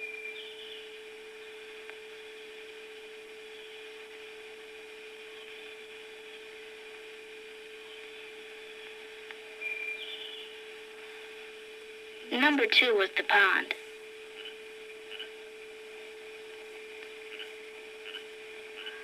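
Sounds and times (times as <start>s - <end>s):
steady hum: 10.2s - 19.0s.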